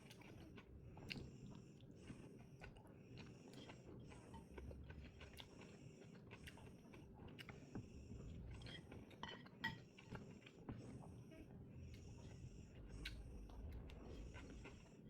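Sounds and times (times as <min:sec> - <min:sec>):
person chewing food: 0:00.0 - 0:07.8.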